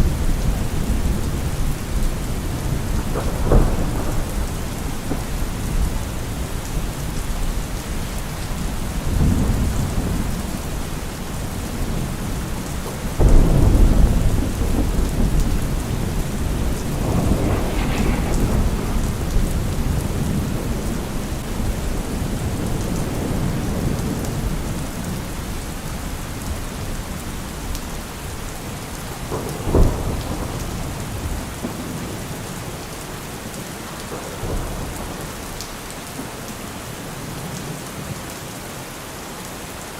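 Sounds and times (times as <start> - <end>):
thunder rumbling: 0.0 - 25.8
steady rain: 0.0 - 39.9
loud thunder clap: 13.0 - 25.1
sharp thunder crack: 13.2 - 23.3.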